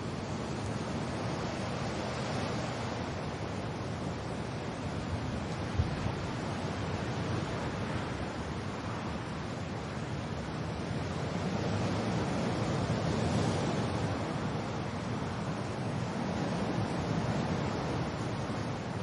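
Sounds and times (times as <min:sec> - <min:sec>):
rain: 0:00.0 - 0:19.0
wind: 0:00.0 - 0:19.0.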